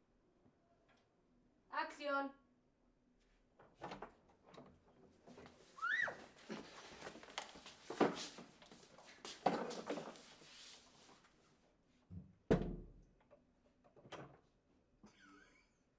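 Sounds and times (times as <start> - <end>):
knocks and scuffing: 6.2 - 11.2.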